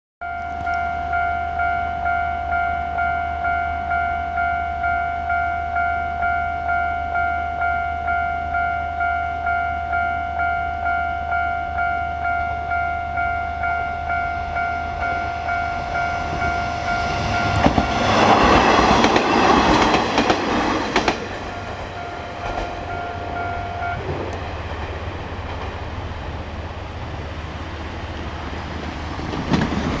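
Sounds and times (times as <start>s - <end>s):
level crossing bell ringing: 0.2s - 18.1s, 21.5s - 24.0s
diesel railcar running: 0.2s - 30.0s
wheels clacking over rail joints: 17.2s - 27.2s, 28.0s - 30.0s.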